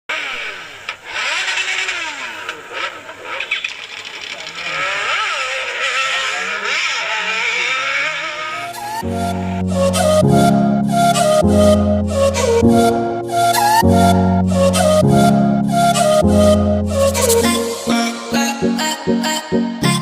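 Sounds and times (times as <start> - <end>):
motorcycle engine revving: 0.3 - 10.2
traffic engines revving: 0.3 - 12.6.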